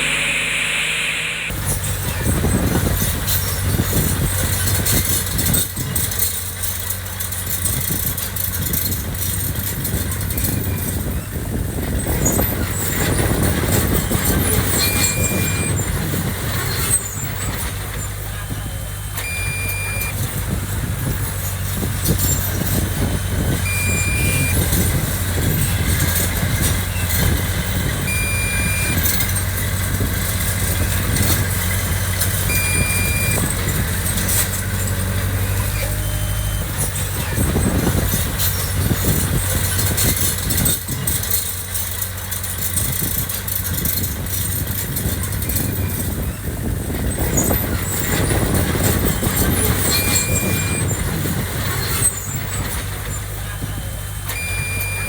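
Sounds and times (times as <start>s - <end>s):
short high beeps: 0.0s - 1.5s, 19.2s - 20.2s, 23.7s - 24.8s, 28.1s - 29.3s, 32.5s - 33.5s, 54.3s - 55.0s
heavy machinery diesel engine: 0.0s - 55.0s.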